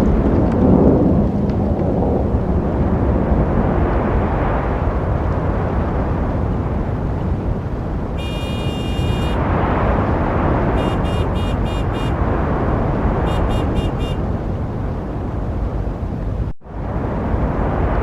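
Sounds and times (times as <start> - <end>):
passing car traffic rumble: 0.0 - 18.0
car horn honking: 8.2 - 9.4, 10.8 - 12.2, 13.2 - 14.3.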